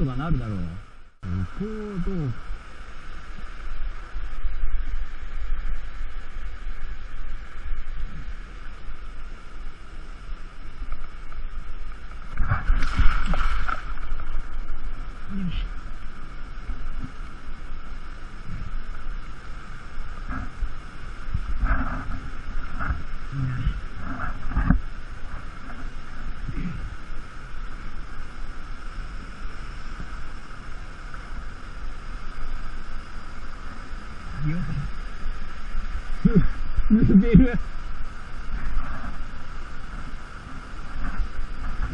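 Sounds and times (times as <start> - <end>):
low rumble on microphone: 0.0 - 41.9
rushing water: 10.8 - 15.8
water splashing: 11.0 - 15.0.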